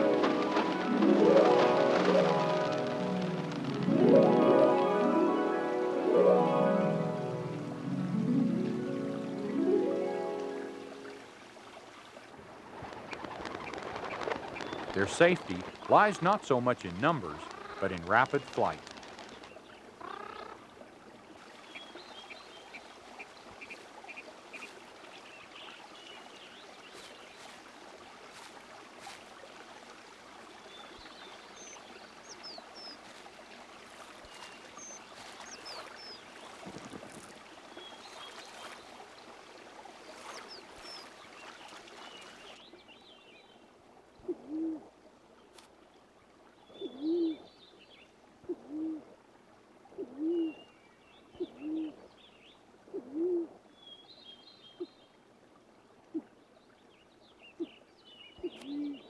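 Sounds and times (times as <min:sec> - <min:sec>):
steady rushing background: 0:00.0 - 0:06.0
small birds chirping: 0:13.2 - 0:20.7, 0:34.0 - 0:39.3, 0:56.7 - 0:59.0
pigeon cooing: 0:46.8 - 0:47.4, 0:48.5 - 0:49.1, 0:50.0 - 0:50.6, 0:51.4 - 0:52.0, 0:52.9 - 0:53.5.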